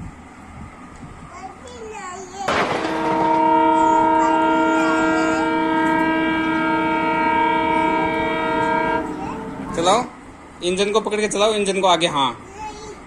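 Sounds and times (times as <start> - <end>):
toy train electronic horn: 2.9 - 9.9.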